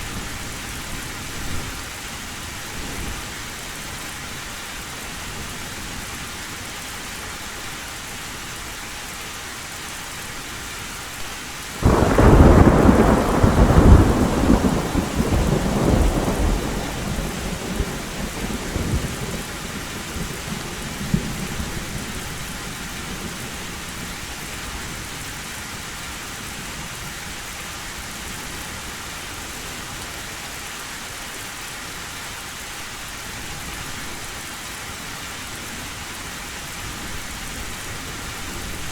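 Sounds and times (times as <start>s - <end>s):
heavy rain on a metal roof: 0.0s - 38.9s
thunderclap rumbling: 11.8s - 22.3s.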